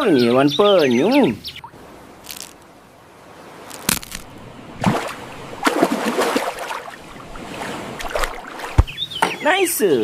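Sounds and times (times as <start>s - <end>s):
water sloshing and splashing: 1.7s - 9.1s.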